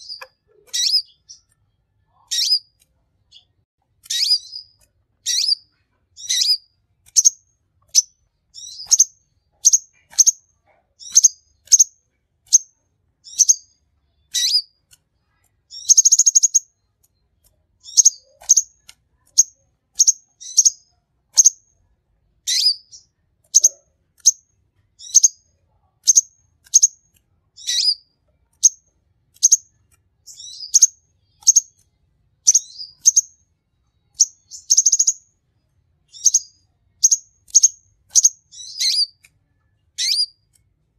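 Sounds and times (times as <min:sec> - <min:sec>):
bird singing sharp high chirps: 0:00.0 - 0:01.5, 0:02.1 - 0:02.7, 0:03.3 - 0:05.6, 0:06.2 - 0:07.4, 0:08.0 - 0:10.4, 0:12.5 - 0:14.7, 0:15.7 - 0:16.7, 0:19.4 - 0:21.6, 0:22.5 - 0:24.4, 0:25.0 - 0:25.4, 0:27.6 - 0:28.0, 0:30.3 - 0:31.8, 0:32.5 - 0:33.4, 0:34.1 - 0:35.2, 0:36.1 - 0:39.2, 0:40.0 - 0:40.4
buzzy bird trill: 0:00.0 - 0:01.5, 0:02.1 - 0:11.9, 0:12.5 - 0:14.8, 0:15.7 - 0:16.8, 0:17.8 - 0:21.6, 0:22.5 - 0:24.4, 0:25.0 - 0:25.4, 0:27.6 - 0:28.8, 0:29.4 - 0:31.8, 0:32.4 - 0:33.4, 0:34.1 - 0:35.3, 0:36.1 - 0:39.2, 0:39.9 - 0:40.5.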